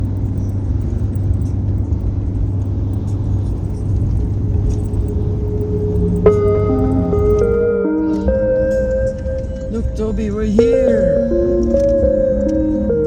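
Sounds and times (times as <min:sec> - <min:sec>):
vehicle rumble with road noise: 0:00.0 - 0:07.8.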